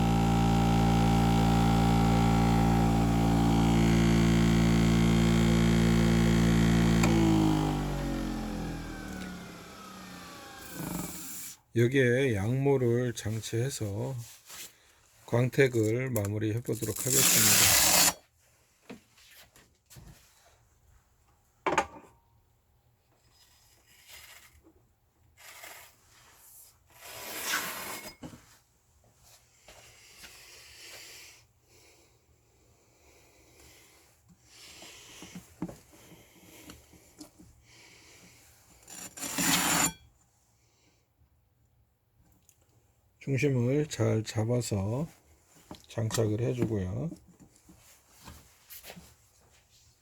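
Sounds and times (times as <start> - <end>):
pad rubbing and scraping: 38.9 - 40.0.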